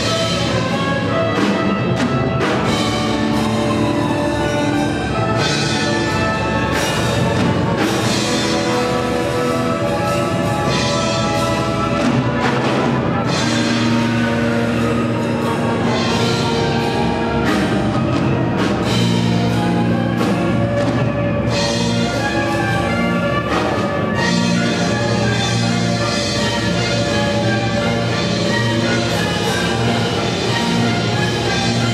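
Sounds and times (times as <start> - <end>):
orchestral music: 0.0 - 31.9
timpani hits: 0.0 - 31.9.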